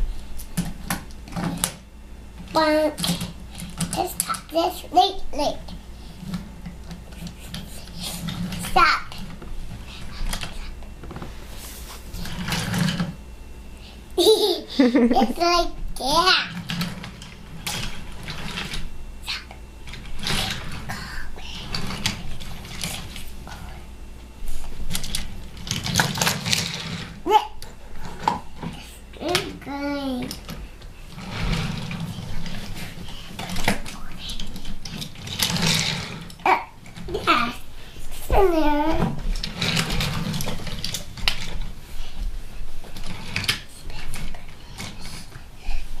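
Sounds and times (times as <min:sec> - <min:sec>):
toy train clicking and rattling: 0:24.9 - 0:27.1, 0:31.2 - 0:37.6, 0:38.4 - 0:41.7.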